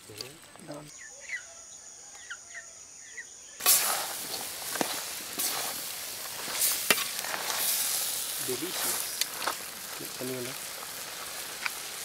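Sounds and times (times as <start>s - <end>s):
bird chirps: 0.6s - 3.6s
pork sizzling in a metal pan: 3.6s - 12.0s.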